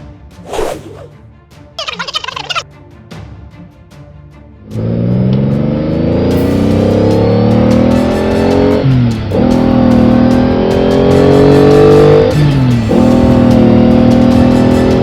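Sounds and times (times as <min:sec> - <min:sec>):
vehicle engine accelerating: 0:04.6 - 0:15.0.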